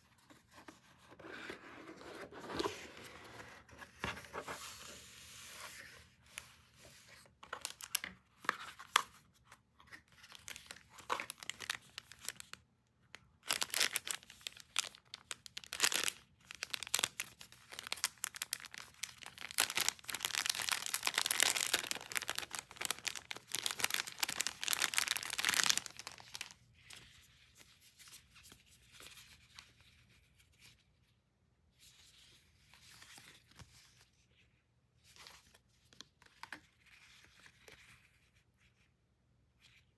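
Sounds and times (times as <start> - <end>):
packaging tearing and crinkling: 7.6 - 8.0, 10.3 - 12.6, 13.4 - 26.5.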